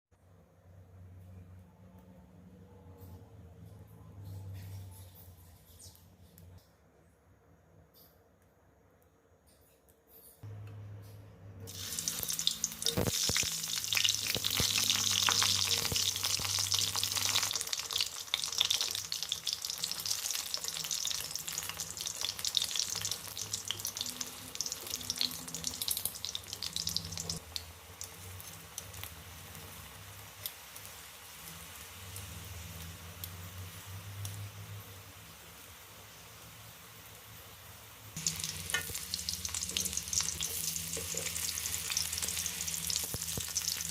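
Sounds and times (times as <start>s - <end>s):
food sizzling in hot oil: 11.7s - 43.9s.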